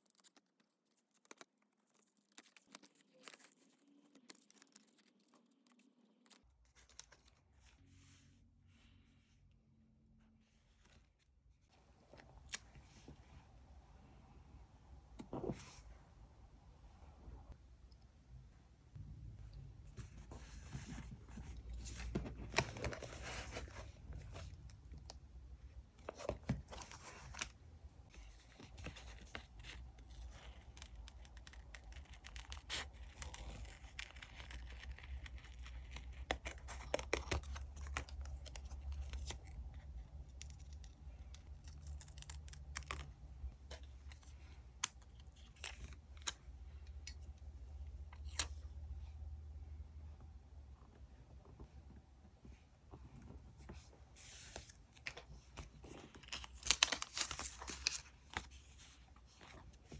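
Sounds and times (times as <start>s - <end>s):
paper rustling and tearing: 0.0s - 7.4s, 54.2s - 59.6s.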